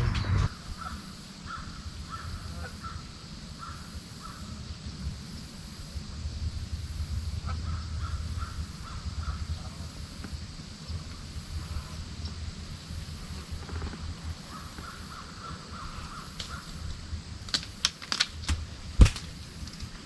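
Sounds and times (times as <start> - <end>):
wind rumble on microphone: 0.0 - 14.9.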